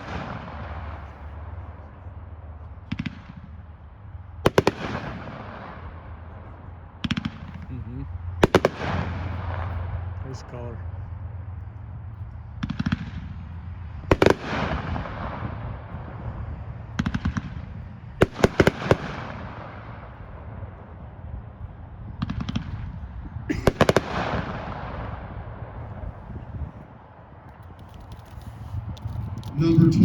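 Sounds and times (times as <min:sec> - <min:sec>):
fireworks volleys firing: 0:04.5 - 0:05.7, 0:08.4 - 0:09.7, 0:18.2 - 0:20.0, 0:23.5 - 0:25.2.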